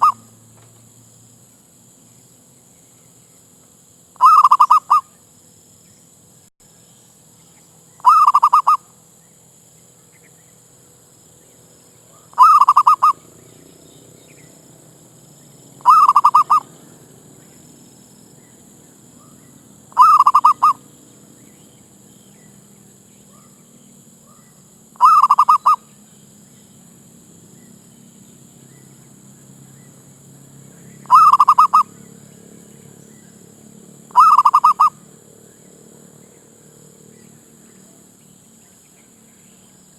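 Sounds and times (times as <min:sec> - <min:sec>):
dove trilled cooing call: 0:00.0 - 0:00.3, 0:04.2 - 0:05.1, 0:08.0 - 0:08.9, 0:12.1 - 0:14.6, 0:15.8 - 0:17.6, 0:18.4 - 0:21.0, 0:24.2 - 0:26.0, 0:30.8 - 0:33.4, 0:34.1 - 0:35.1.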